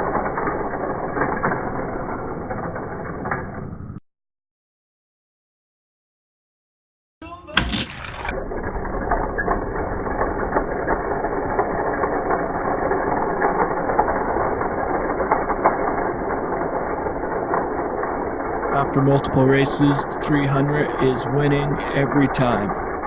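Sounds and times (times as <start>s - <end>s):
toy car wheels rattling on track: 9.5s - 18.4s.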